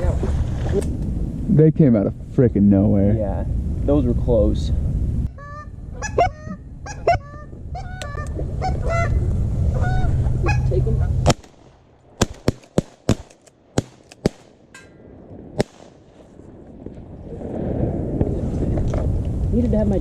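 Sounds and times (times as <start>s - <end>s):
low rumble: 0.0s - 20.0s
honking calls: 5.3s - 11.2s
shotgun blasts: 11.2s - 14.7s, 15.5s - 16.3s.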